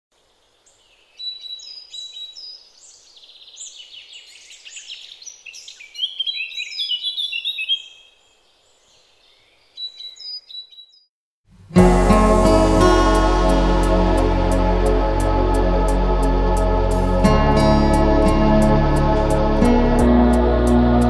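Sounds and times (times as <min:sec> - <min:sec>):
small songbirds chirping: 0:00.2 - 0:11.1.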